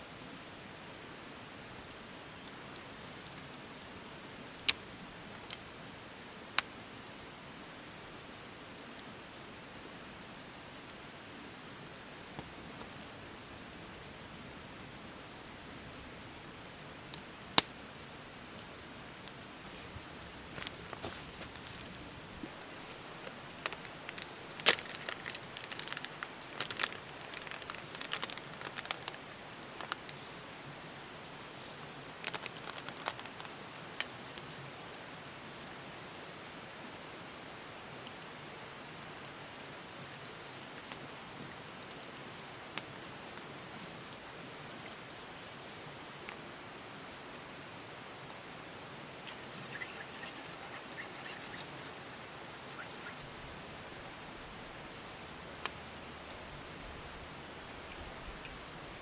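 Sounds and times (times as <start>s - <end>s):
faint hiss: 0.0s - 59.0s
rain falling in forest: 0.0s - 59.0s
sharp crackles and clicks: 1.8s - 5.8s, 15.9s - 30.2s, 32.2s - 34.1s, 49.2s - 52.0s.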